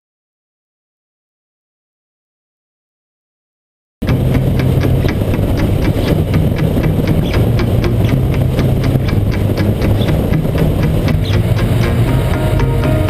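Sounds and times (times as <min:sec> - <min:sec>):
motorcycle engine running: 0:04.0 - 0:13.0.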